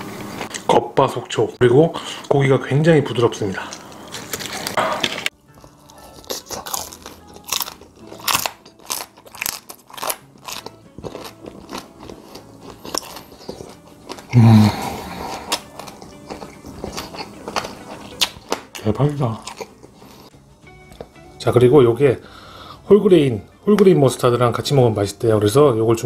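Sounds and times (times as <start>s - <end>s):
crunchy chewing: 3.6s - 20.3s
person humming: 14.3s - 16.2s.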